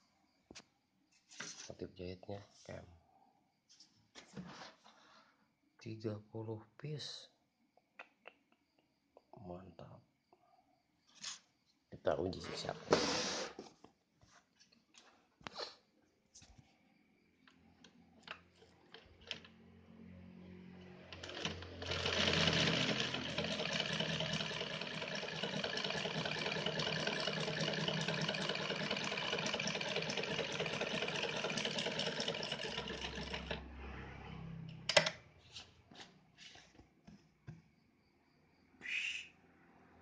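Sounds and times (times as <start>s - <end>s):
sewing machine motor running: 21.1s - 33.7s.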